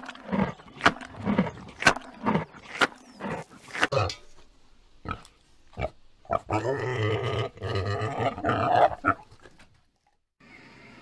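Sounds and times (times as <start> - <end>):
warthog growling: 0.0 - 4.2, 5.1 - 9.2.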